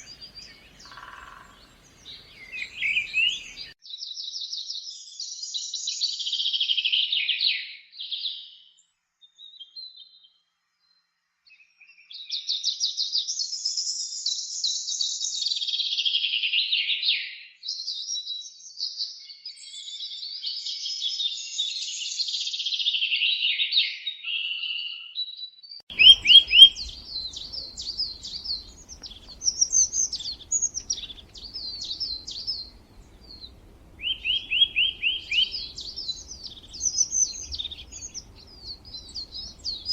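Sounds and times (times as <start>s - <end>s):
bird chirps: 0.0s - 3.8s, 25.9s - 39.9s
songbirds trilling: 0.0s - 3.8s, 25.9s - 39.9s
faint low hum: 25.9s - 39.9s.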